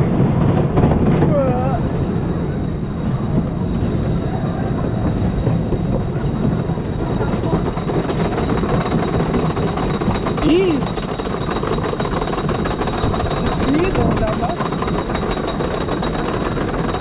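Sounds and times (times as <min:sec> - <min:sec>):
roller coaster train rumbling: 0:00.0 - 0:17.0
rapid rattling clicks: 0:07.4 - 0:17.0.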